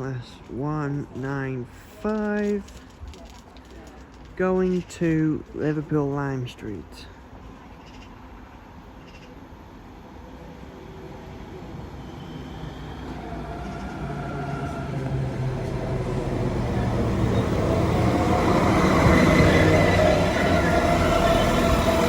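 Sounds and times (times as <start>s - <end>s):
diesel train approaching: 7.0s - 22.0s.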